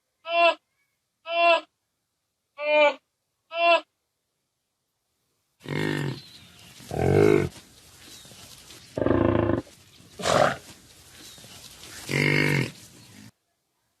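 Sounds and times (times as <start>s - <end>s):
faint background hiss: 0.0s - 14.0s
bison low calls: 9.0s - 10.7s, 12.0s - 13.0s.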